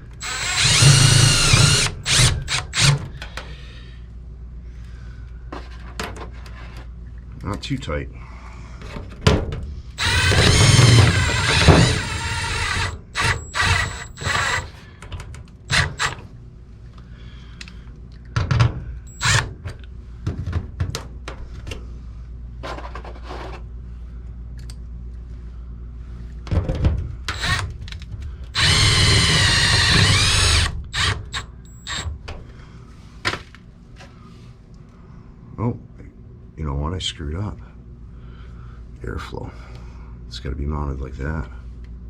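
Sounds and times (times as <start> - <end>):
cordless drill driving screw: 0.1 - 3.0, 10.0 - 14.7, 15.7 - 16.2, 19.1 - 19.5, 27.3 - 27.6, 28.6 - 32.1.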